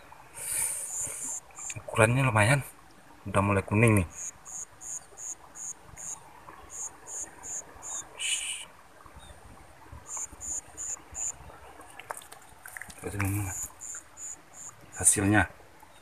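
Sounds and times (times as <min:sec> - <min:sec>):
insect chirping in high pulses: 0:00.8 - 0:01.8, 0:04.1 - 0:08.6, 0:10.1 - 0:11.4, 0:13.5 - 0:15.0.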